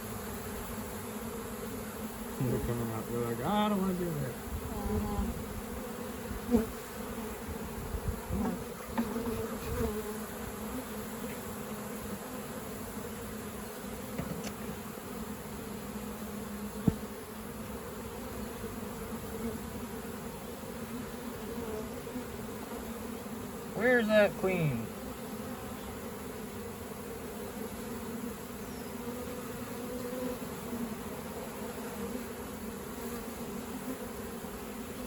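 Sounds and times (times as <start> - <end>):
honeybees buzzing: 0.0 - 35.0
sharp knock: 16.8 - 17.0.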